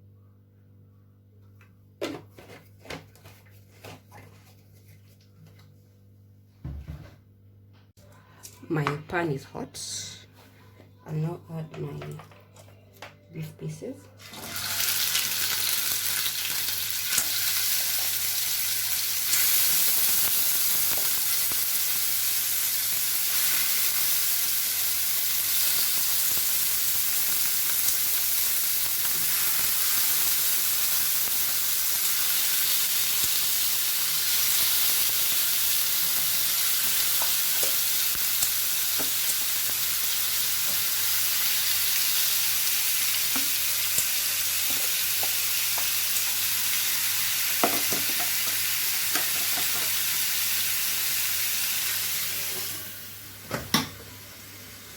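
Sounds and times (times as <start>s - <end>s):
meat sizzling in hot oil: 14.2s - 53.3s.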